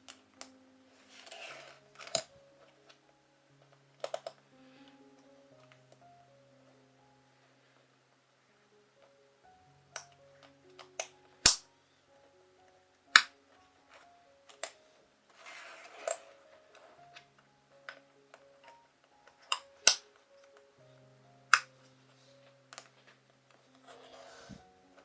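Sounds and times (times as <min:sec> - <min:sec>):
soft plucked background music: 0:00.0 - 0:25.0
plastic keyboard parts clicking: 0:03.6 - 0:04.4, 0:09.9 - 0:11.6, 0:13.2 - 0:20.7.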